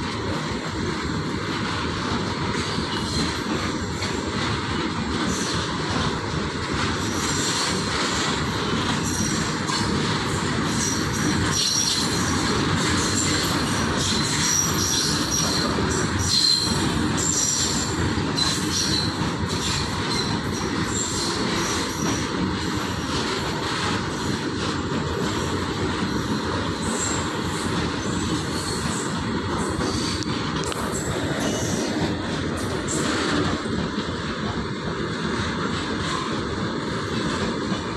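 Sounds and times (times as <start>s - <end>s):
freight train rolling past: 0.0s - 37.9s
high-pitched wheel squeals: 10.8s - 21.8s.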